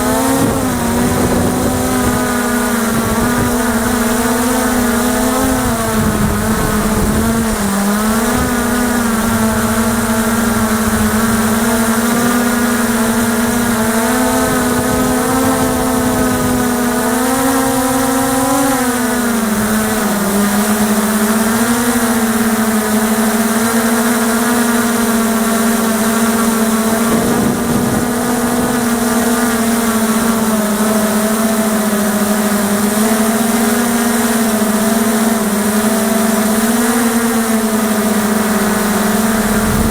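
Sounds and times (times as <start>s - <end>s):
wind buffeting microphone: 0.0s - 17.8s, 37.8s - 39.9s
drone motors humming: 0.0s - 18.2s, 36.6s - 39.9s.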